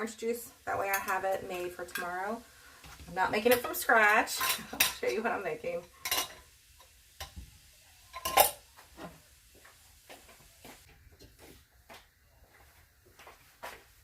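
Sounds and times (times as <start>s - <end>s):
dishes and utensils clinking: 3.4s - 6.5s, 8.1s - 9.1s.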